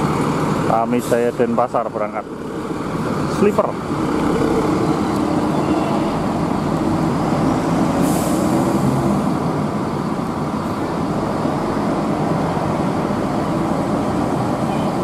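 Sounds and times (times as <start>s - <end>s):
bus diesel engine running: 0.0s - 15.0s
air brake hiss: 8.0s - 8.7s.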